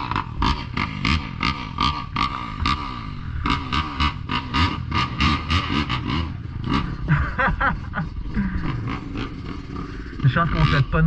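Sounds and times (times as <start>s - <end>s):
dirt-bike engines revving: 0.0s - 11.0s.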